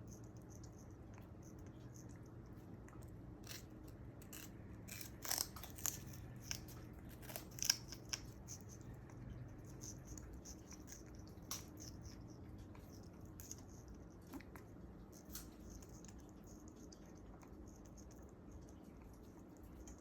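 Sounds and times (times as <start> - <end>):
parrot crunching sugarcane: 0.1 - 20.0.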